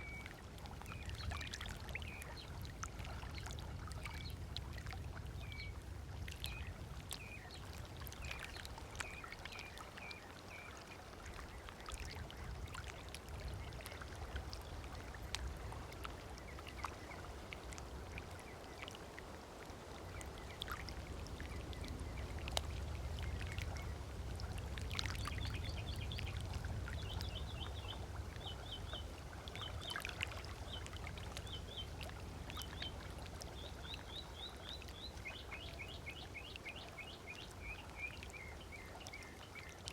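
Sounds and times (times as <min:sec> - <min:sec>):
small waves lapping on sand: 0:00.0 - 0:39.9
low steady rumble: 0:19.6 - 0:37.0.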